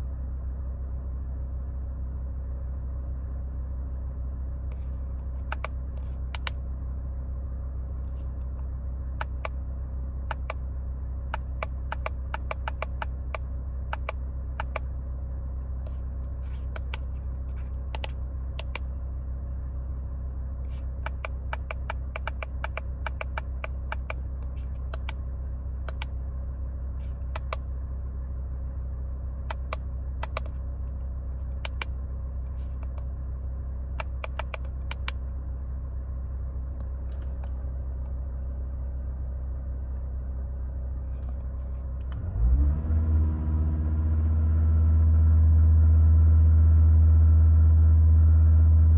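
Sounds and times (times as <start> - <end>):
car engine idling: 0.0 - 42.4
irregular clicks and taps: 5.4 - 6.6, 9.2 - 9.6, 10.3 - 10.6, 11.3 - 14.9, 16.5 - 18.9, 20.7 - 25.2, 25.9 - 26.1, 27.3 - 27.6, 29.5 - 30.6, 31.6 - 31.9, 34.0 - 35.2.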